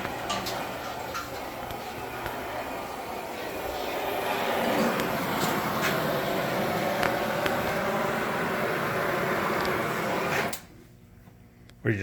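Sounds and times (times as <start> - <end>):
metalworking equipment humming: 0.0 - 10.8.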